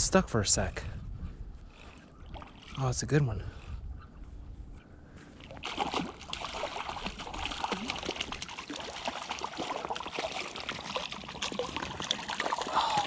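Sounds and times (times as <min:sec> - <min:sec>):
creek water splashing and gurgling: 0:01.9 - 0:03.1, 0:05.4 - 0:13.0.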